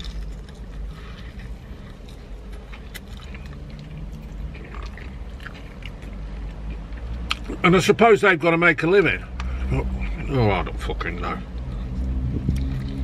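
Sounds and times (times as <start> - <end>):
man chewing fried chicken: 0.0 - 7.6, 11.5 - 13.0
low steady rumble: 0.0 - 13.0.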